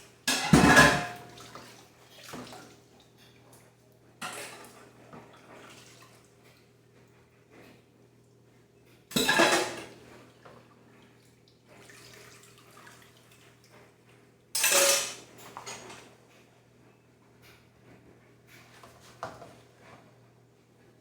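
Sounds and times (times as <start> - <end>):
crockery clattering: 0.3 - 1.3, 9.1 - 9.8, 14.6 - 15.9
dishes handling noise: 0.3 - 1.4, 9.1 - 9.9, 14.6 - 16.0.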